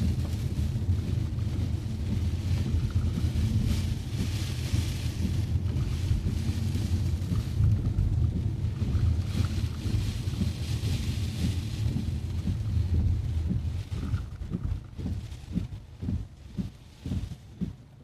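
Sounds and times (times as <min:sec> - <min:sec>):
car driving on wet road: 0:00.0 - 0:18.0
rain and tyre spray hiss: 0:00.0 - 0:18.0.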